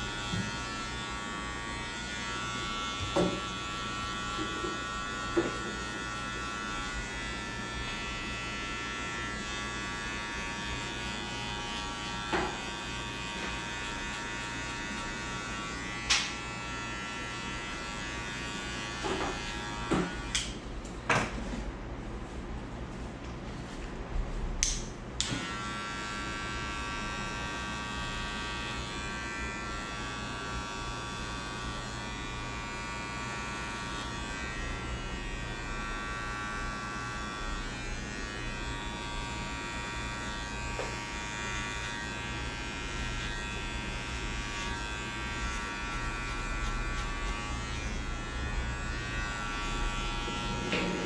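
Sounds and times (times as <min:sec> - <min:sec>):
electric hair clippers running: 0:00.0 - 0:20.7, 0:24.6 - 0:51.0
hair clippers clicks: 0:16.0 - 0:16.4, 0:19.0 - 0:20.6, 0:24.6 - 0:25.6, 0:40.6 - 0:41.5.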